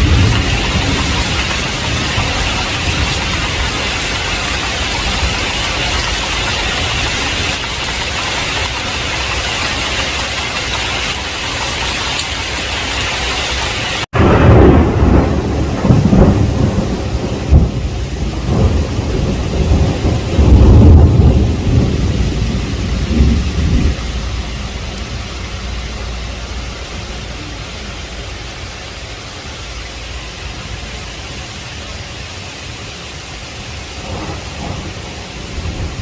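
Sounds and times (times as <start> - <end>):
rolling thunder: 0.0 - 12.6, 14.1 - 27.1, 33.6 - 36.0
heavy rain pouring: 0.0 - 36.0.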